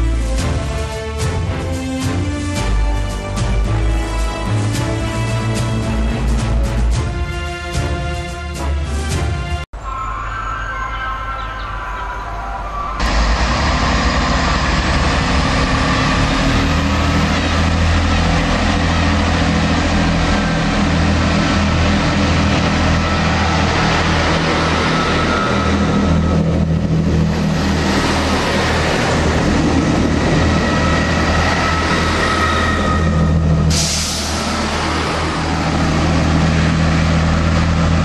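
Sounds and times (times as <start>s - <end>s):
train diesel engines droning: 0.0s - 38.0s
train wheels on rails: 13.0s - 38.0s.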